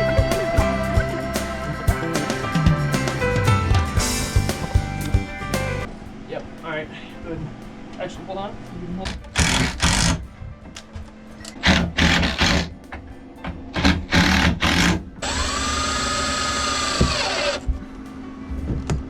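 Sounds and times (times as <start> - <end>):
power tool motor whining: 9.2 - 10.2, 13.8 - 17.7
power drill driving screws into wood: 9.4 - 10.2, 11.6 - 12.7, 13.8 - 17.6.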